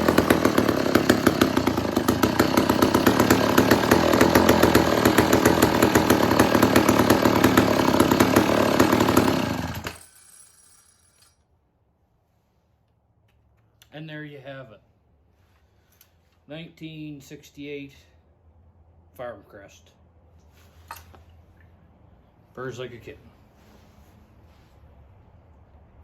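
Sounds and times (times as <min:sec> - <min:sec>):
chainsaw running: 0:00.0 - 0:11.3.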